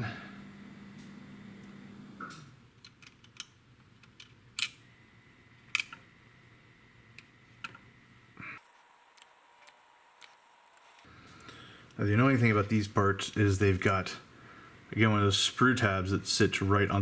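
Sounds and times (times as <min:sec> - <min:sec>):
plastic parts clicking: 0:02.8 - 0:04.8, 0:05.7 - 0:06.0
plastic parts snapping: 0:05.7 - 0:06.0.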